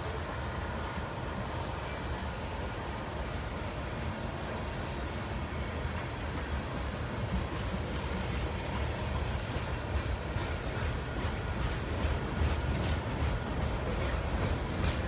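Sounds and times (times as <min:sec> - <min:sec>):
train wheels rumbling on rail: 0:00.0 - 0:15.0
wheels clacking over rail joints: 0:06.2 - 0:15.0.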